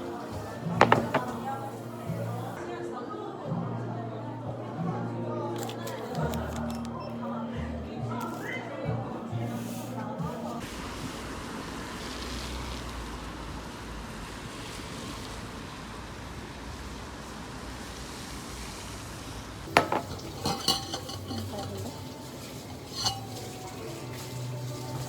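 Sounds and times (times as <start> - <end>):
dishes and utensils clinking: 0.0 - 2.6, 19.7 - 25.0.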